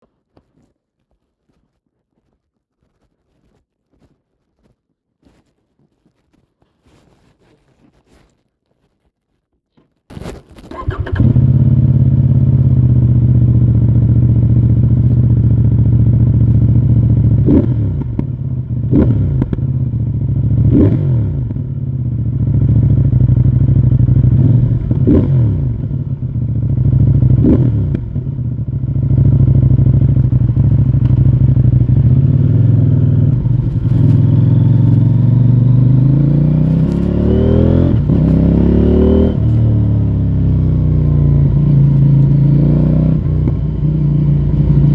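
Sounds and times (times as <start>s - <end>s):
motorcycle engine idling and revving: 10.7s - 44.9s.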